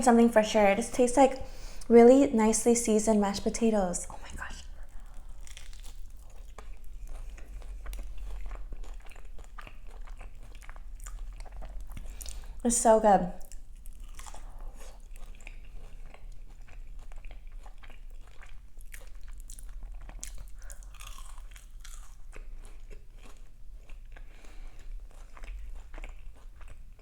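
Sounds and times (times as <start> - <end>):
crunchy food chewing: 4.8 - 12.6, 13.4 - 27.0.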